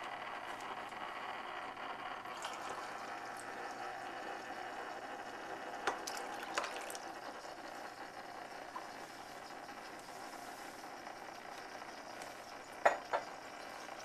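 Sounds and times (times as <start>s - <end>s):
water pouring into plastic reservoir: 2.2s - 9.1s.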